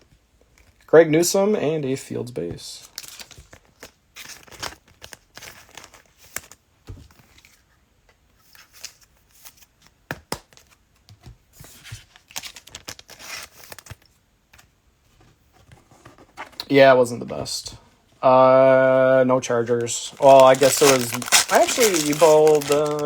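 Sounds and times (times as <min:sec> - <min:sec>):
wrappers crinkling and tearing: 0:02.8 - 0:06.6, 0:12.2 - 0:14.0, 0:19.7 - 0:23.0.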